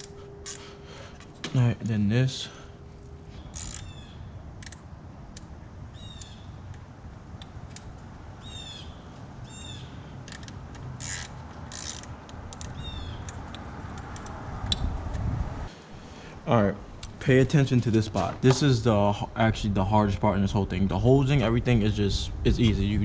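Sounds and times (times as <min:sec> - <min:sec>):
clicks and knocks of parts handled: 0:04.6 - 0:05.5, 0:10.2 - 0:15.2
rubber hose squeaking on fittings: 0:10.3 - 0:13.3.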